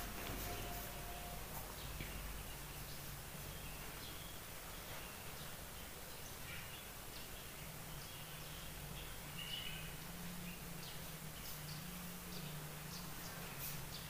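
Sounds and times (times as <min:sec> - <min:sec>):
low hum: 0:00.0 - 0:06.0
outdoor background hiss: 0:00.0 - 0:14.0.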